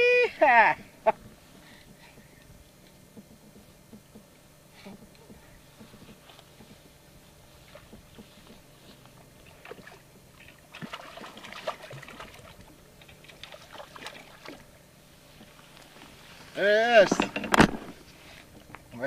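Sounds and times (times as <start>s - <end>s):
small water splashes: 9.4s - 14.8s.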